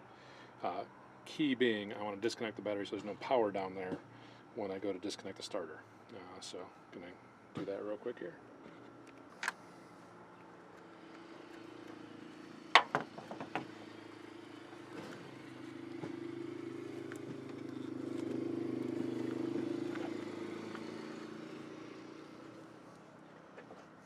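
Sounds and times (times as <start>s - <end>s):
vehicle passing by: 9.6s - 23.5s.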